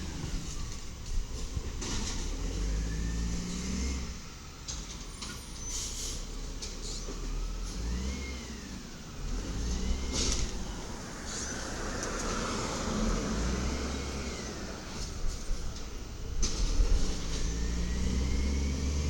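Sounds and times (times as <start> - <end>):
garbage truck engine revving: 7.4 - 11.0, 12.2 - 19.0.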